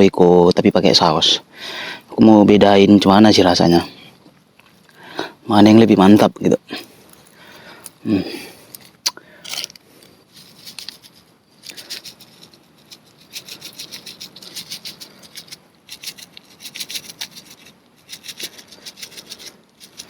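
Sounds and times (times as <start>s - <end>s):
rubbing and scraping strokes: 9.5s - 20.0s.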